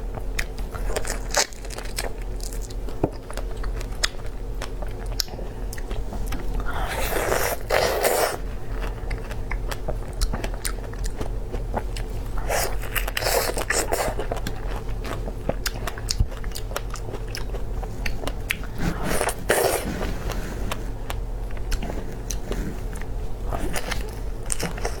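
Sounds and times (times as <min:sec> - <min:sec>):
steady low hum: 0:00.0 - 0:25.0
chewing clicks: 0:00.1 - 0:06.6
biting strawberries: 0:00.1 - 0:25.0.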